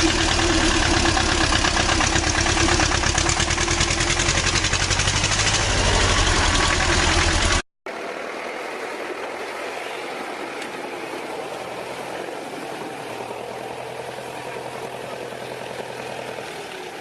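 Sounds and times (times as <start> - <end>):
construction machine engine running: 0.0 - 17.0.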